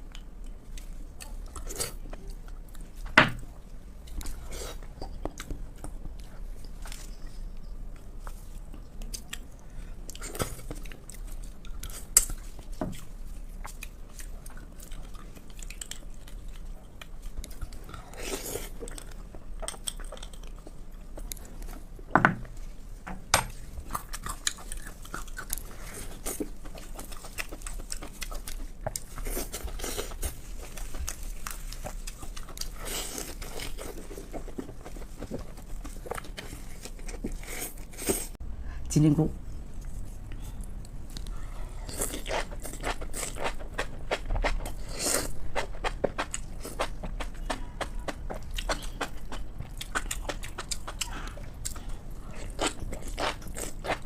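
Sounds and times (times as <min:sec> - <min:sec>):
chewing and biting food: 0:07.9 - 0:21.9, 0:23.6 - 0:38.3, 0:40.6 - 0:54.0.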